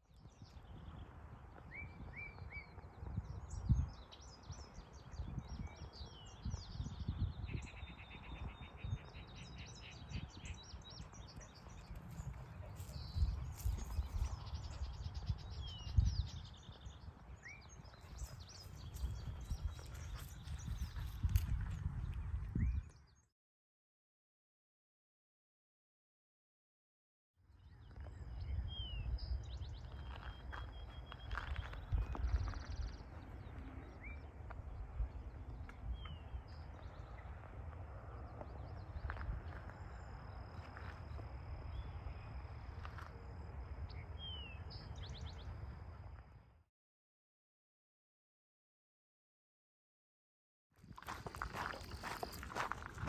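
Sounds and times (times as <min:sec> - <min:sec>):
small birds chirping: 0:00.1 - 0:22.2, 0:27.7 - 0:37.3, 0:50.9 - 0:53.0.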